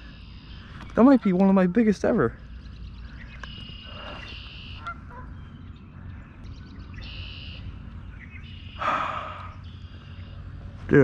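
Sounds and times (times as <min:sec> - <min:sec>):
bird buzzy call: 0:00.0 - 0:05.4, 0:07.0 - 0:07.7, 0:08.3 - 0:10.5
low rumble of wind: 0:00.0 - 0:11.0.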